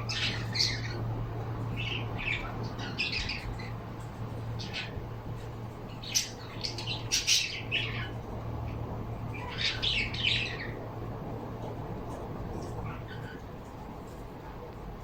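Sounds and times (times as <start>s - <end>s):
pet birds squawking: 0.0s - 5.2s, 5.9s - 8.2s, 9.3s - 10.8s, 12.6s - 13.6s
steady low hum: 0.0s - 15.0s.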